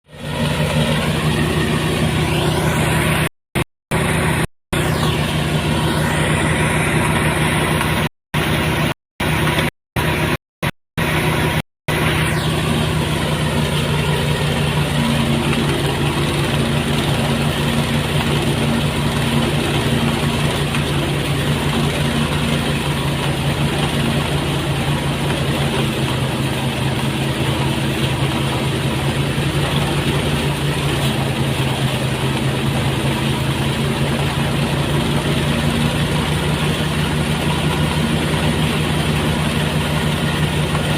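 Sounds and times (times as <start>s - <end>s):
threshing machine engine hum: 0.0s - 40.9s
rushing noise: 3.9s - 10.4s, 11.0s - 20.5s.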